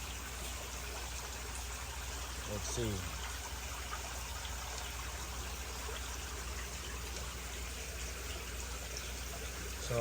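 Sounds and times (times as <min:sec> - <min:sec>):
water trickling: 0:00.0 - 0:10.0.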